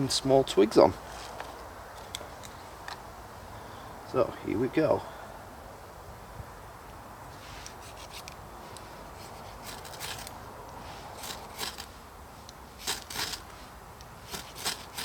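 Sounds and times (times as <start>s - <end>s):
ferro rod scraping rasps: 9.2s - 12.0s, 12.8s - 13.6s, 14.2s - 15.0s.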